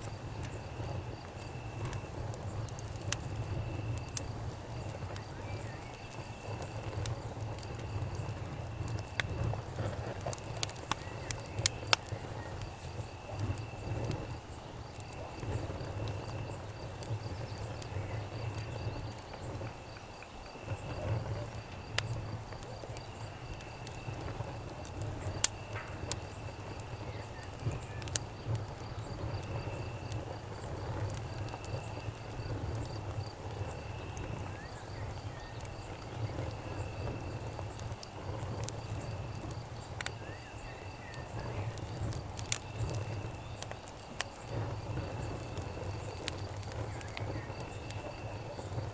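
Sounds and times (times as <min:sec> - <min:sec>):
campfire crackling and popping: 0:00.0 - 0:48.9
insects chirping: 0:00.0 - 0:48.9.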